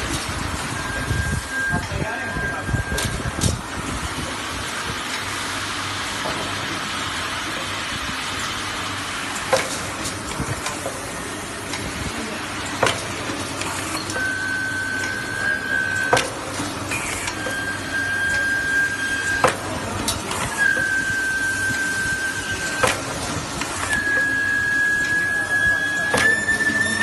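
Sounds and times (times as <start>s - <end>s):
printing machine clacking: 9.3s - 27.0s.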